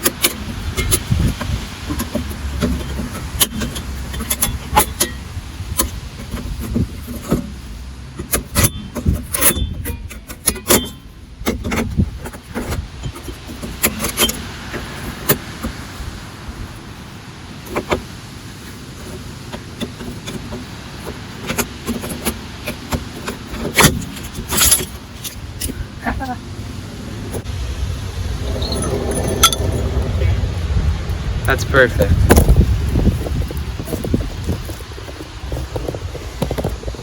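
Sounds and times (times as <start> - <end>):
metal tools clinking: 23.5 - 26.0, 28.4 - 30.4.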